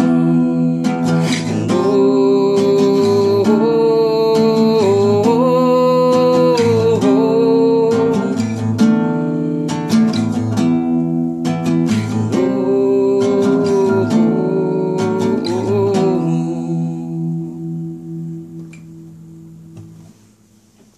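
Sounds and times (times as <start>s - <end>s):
person singing long notes: 0.0s - 8.6s, 12.3s - 17.9s
acoustic guitar strummed: 0.0s - 20.9s.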